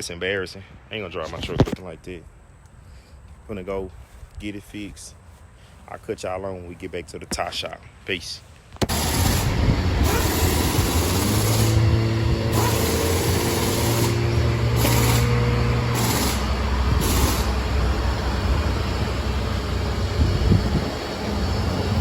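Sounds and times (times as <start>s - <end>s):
mechanical noise: 8.8s - 22.0s
truck engine drone: 8.9s - 22.0s.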